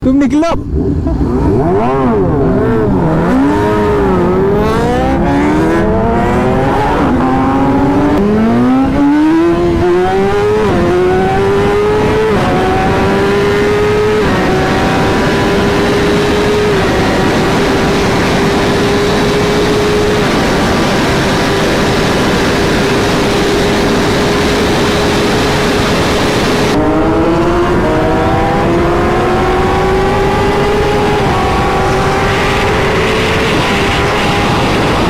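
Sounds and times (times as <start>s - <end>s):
motorcycle engine accelerating: 0.6s - 35.0s.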